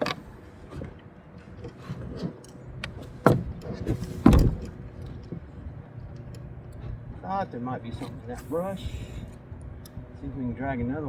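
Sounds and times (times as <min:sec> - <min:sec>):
fishing gear clattering in boat: 0:00.0 - 0:07.3
loud thumps: 0:04.2 - 0:04.7.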